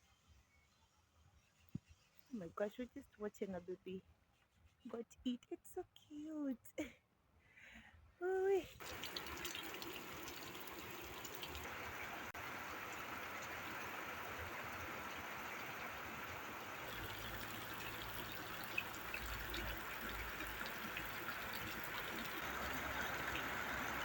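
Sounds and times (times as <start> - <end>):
trickle of running water: 8.8 - 24.0.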